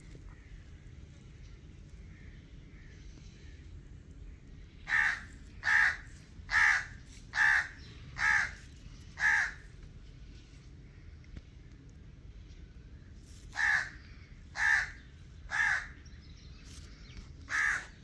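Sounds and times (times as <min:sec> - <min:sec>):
bird calling loudly: 0:04.9 - 0:08.6, 0:09.2 - 0:09.7, 0:13.5 - 0:16.0, 0:17.5 - 0:18.0.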